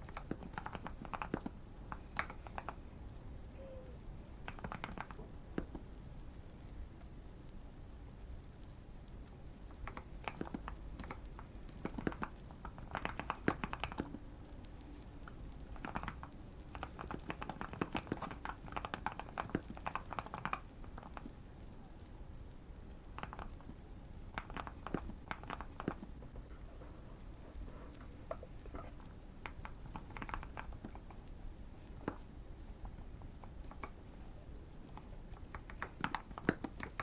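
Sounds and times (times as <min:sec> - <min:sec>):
mechanical keyboard typing: 0:04.4 - 0:05.9, 0:09.9 - 0:21.3.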